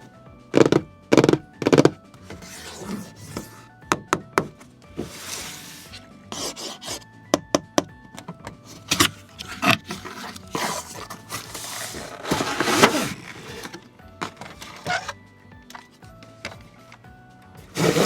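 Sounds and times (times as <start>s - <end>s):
background music: 0.0s - 18.0s
short scraping rub: 5.0s - 7.0s, 17.8s - 18.0s.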